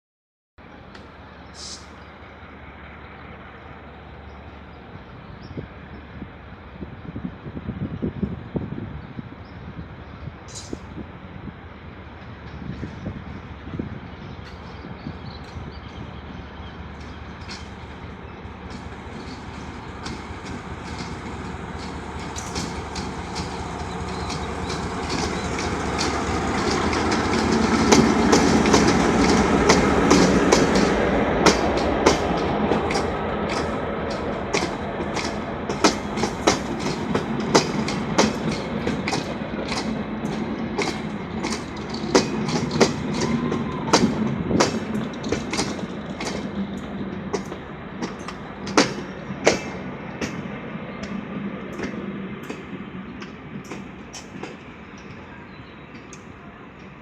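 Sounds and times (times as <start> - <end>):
diesel locomotive engine rumble: 0.6 - 57.0
train wheels clicking over rail joints: 12.1 - 57.0.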